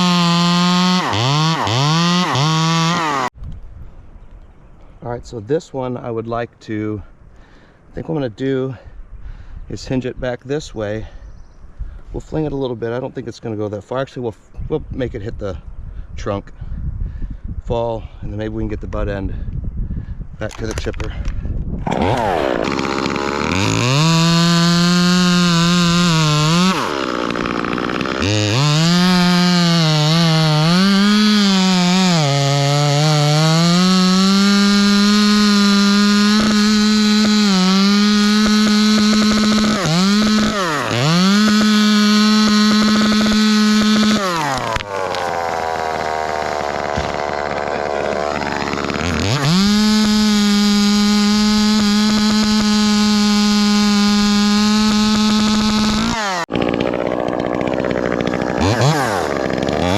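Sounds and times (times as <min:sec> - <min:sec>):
chainsaw idling: 0:00.0 - 0:03.3, 0:21.8 - 0:59.9
chainsaw cutting wood: 0:00.0 - 0:03.4, 0:20.5 - 0:59.9.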